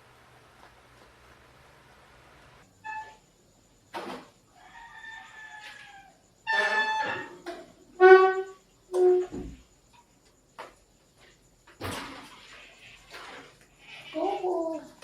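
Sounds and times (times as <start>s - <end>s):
rooster crowing: 4.5s - 7.3s.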